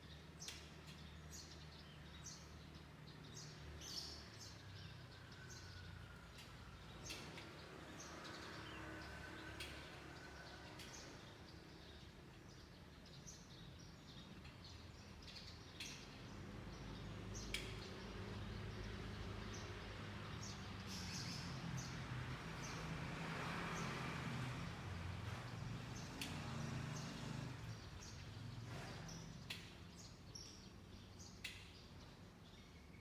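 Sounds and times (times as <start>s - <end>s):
small birds chirping: 0.0s - 22.9s, 23.8s - 33.0s.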